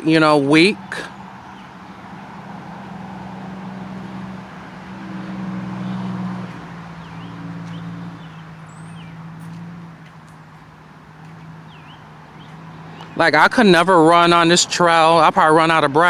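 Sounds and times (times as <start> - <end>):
highway traffic hum: 0.0 - 16.0.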